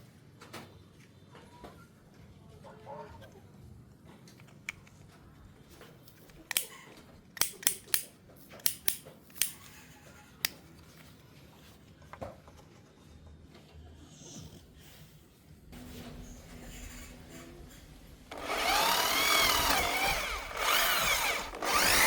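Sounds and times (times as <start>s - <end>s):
sharp cutting snips: 7.4s - 9.6s.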